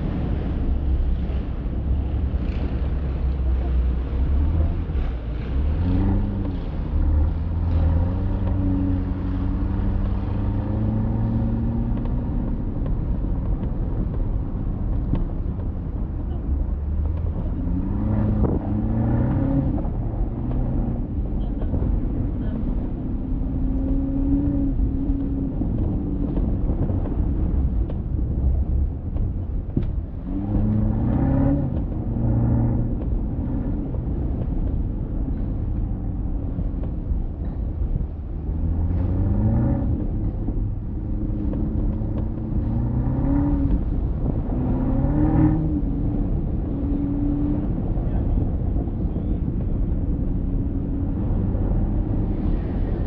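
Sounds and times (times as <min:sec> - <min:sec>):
car engine accelerating: 0:00.0 - 0:53.0
road and tyre rumble: 0:00.0 - 0:53.0.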